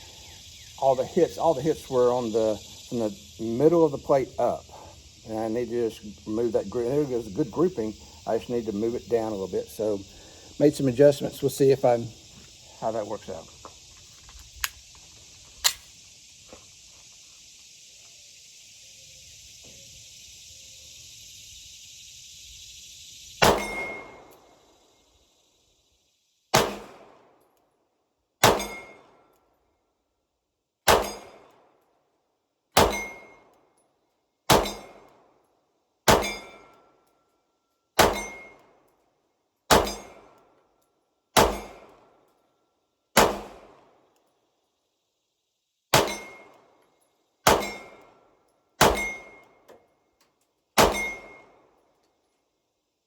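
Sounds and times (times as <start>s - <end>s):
gunshots: 23.4s - 24.2s, 26.6s - 27.2s, 28.4s - 29.0s, 30.9s - 31.4s, 32.8s - 33.2s, 34.5s - 35.0s, 36.1s - 36.5s, 38.0s - 38.4s, 39.7s - 40.2s, 41.4s - 41.9s, 43.2s - 43.8s, 46.0s - 46.4s, 47.5s - 48.0s, 48.8s - 49.3s, 50.8s - 51.4s
steel target plate ringing: 23.5s - 24.2s, 28.5s - 29.0s, 32.8s - 33.4s, 36.2s - 36.7s, 38.0s - 38.6s, 39.8s - 40.2s, 46.0s - 46.5s, 47.6s - 48.0s, 48.8s - 49.4s, 50.8s - 51.5s.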